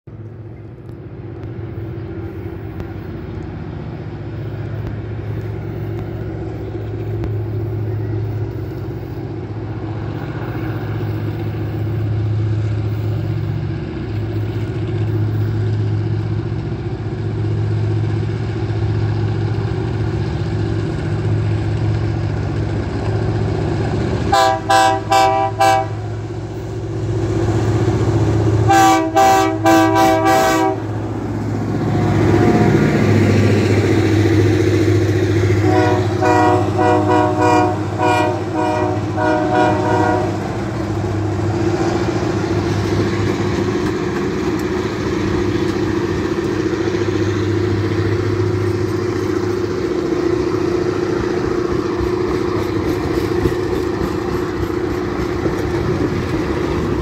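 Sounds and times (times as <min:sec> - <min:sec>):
train wheels on rails: 0:00.1 - 0:57.0
diesel engine running: 0:00.3 - 0:57.0
locomotive horn blasts: 0:24.3 - 0:26.1, 0:28.6 - 0:30.9, 0:35.6 - 0:40.6.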